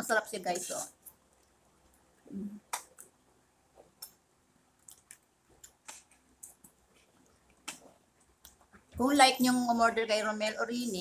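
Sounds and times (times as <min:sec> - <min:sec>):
people chewing: 0:03.8 - 0:08.8.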